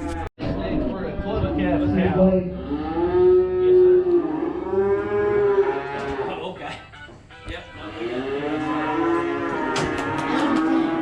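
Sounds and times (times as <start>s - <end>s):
cattle mooing: 1.6s - 6.4s, 7.8s - 11.0s.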